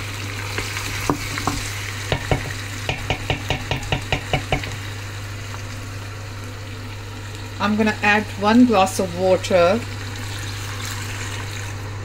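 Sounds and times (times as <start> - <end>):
meat sizzling in oil: 0.0 - 12.0
wooden spoon knocking against pot: 1.1 - 4.8.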